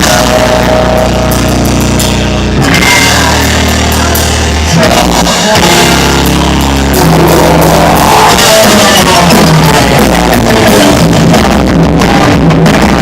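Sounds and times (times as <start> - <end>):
drum kit: 0.0 - 13.0
electric guitar: 0.0 - 13.0.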